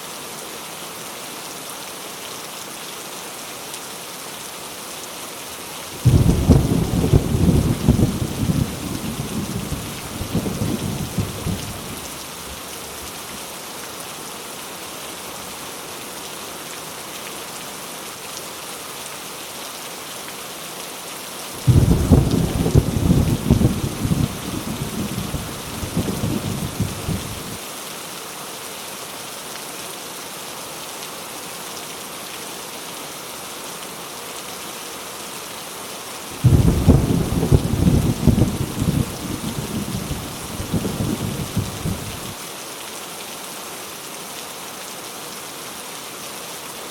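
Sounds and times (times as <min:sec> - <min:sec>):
heavy rain: 0:00.0 - 0:46.9
thunder rumbling: 0:06.0 - 0:11.9, 0:21.6 - 0:27.6, 0:36.4 - 0:42.4.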